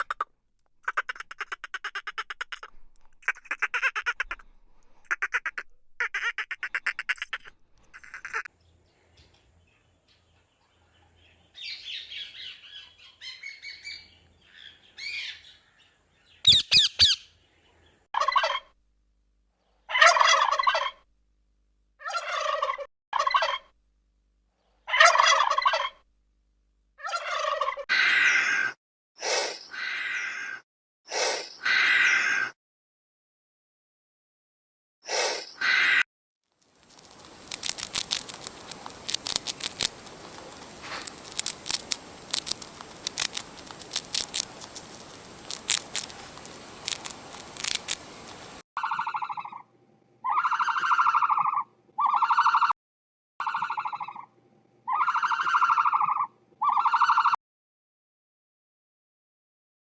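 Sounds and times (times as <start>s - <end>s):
domestic fowl calling: 0.9s - 4.4s, 5.1s - 8.5s, 18.2s - 18.7s, 19.9s - 21.0s, 22.0s - 23.7s, 24.9s - 26.0s, 27.0s - 28.8s, 48.8s - 52.7s, 53.4s - 54.3s, 54.9s - 57.4s.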